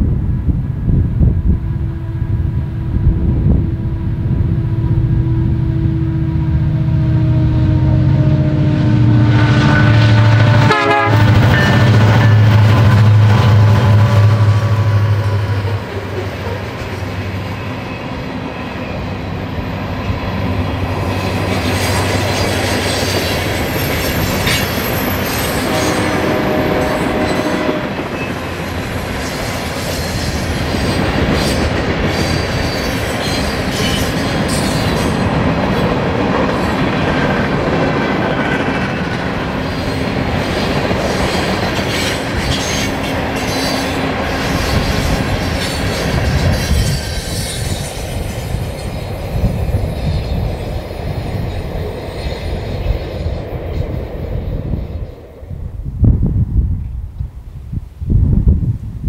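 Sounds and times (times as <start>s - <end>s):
freight train rail rumble: 0.0s - 59.0s
low drone: 0.2s - 22.4s
high-pitched wheel squeal: 21.1s - 35.3s, 39.7s - 51.4s.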